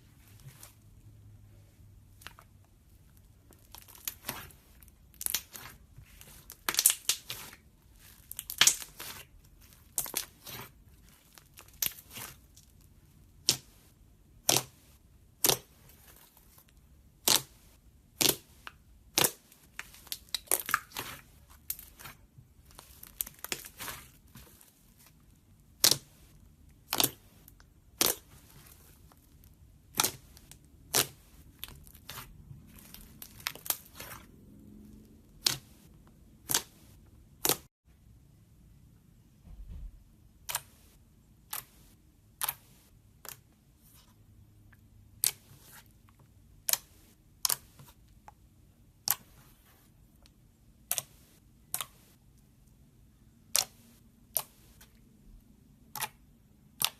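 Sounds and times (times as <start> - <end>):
slime popping and crackling: 5.1 - 12.7, 18.2 - 24.1, 29.8 - 34.2.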